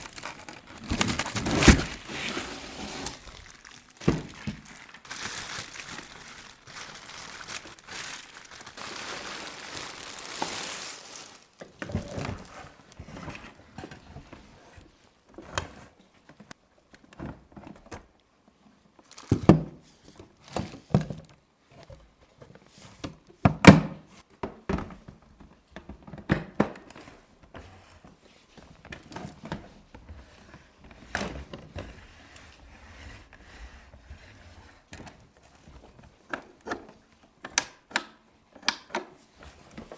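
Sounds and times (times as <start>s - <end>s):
packaging crinkling and rustling: 0.0s - 13.5s, 19.0s - 20.8s.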